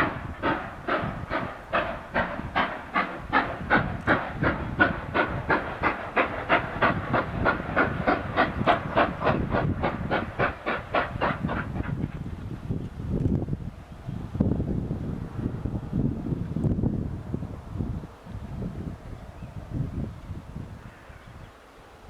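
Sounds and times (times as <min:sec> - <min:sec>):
steam locomotive chuffing: 0:00.0 - 0:12.6.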